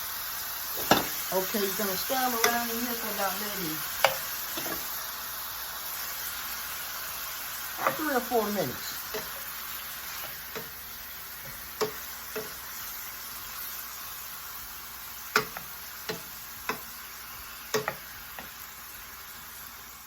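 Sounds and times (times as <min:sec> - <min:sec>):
mushrooms sizzling in a frying pan: 0:00.0 - 0:20.0
utensil clicking against pan: 0:02.4 - 0:03.2, 0:03.9 - 0:04.8, 0:10.1 - 0:10.8, 0:11.4 - 0:12.8, 0:15.2 - 0:18.7.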